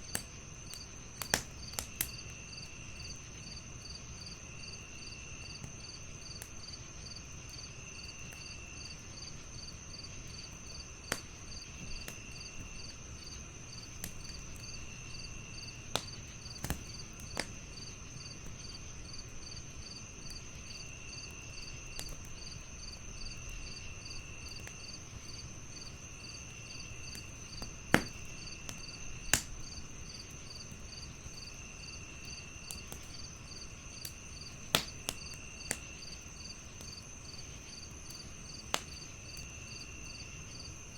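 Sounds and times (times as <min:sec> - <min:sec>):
crickets chirping: 0:00.0 - 0:40.9
wood fire crackling and popping: 0:00.0 - 0:40.9.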